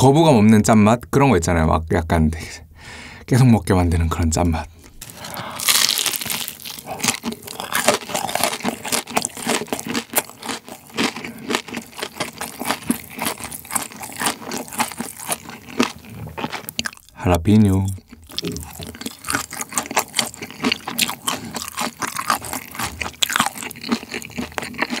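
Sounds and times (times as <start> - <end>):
bite into crispy food: 5.0 - 17.1, 18.3 - 25.0
crunchy chewing: 5.0 - 17.2, 17.8 - 25.0.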